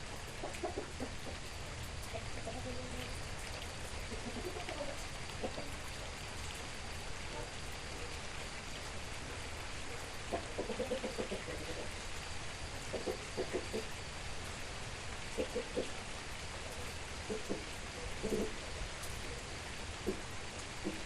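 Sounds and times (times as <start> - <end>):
rain pattering: 0.0 - 21.0
chicken clucks: 0.3 - 3.2, 4.0 - 5.8, 10.3 - 12.0, 12.9 - 13.9, 15.3 - 16.0, 17.3 - 18.6, 20.8 - 21.0.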